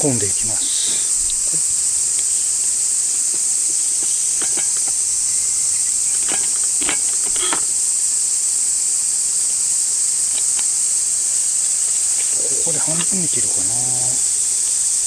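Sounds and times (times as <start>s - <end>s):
cicadas chorus: 0.0s - 15.0s
handling clicks and rustles: 1.2s - 7.8s.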